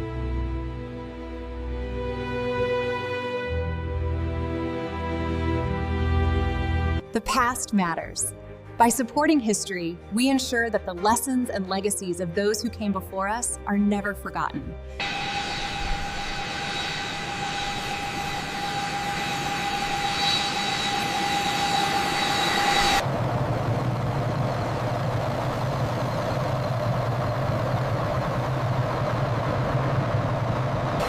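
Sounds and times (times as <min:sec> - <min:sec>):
jet engine rumble: 0:15.0 - 0:31.0
jet engine whine: 0:15.0 - 0:31.0.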